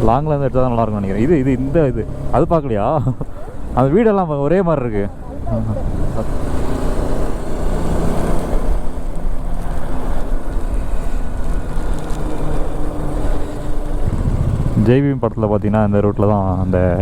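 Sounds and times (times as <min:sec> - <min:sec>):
motorcycle engine running: 0:00.0 - 0:17.0
wind rushing over microphone: 0:05.1 - 0:16.2.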